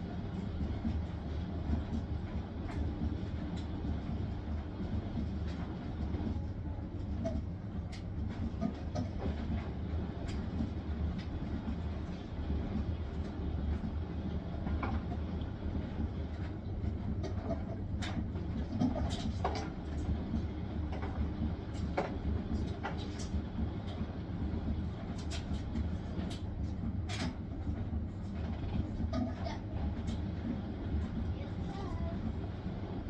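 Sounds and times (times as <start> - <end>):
washing machine drum spinning: 0.0 - 33.0.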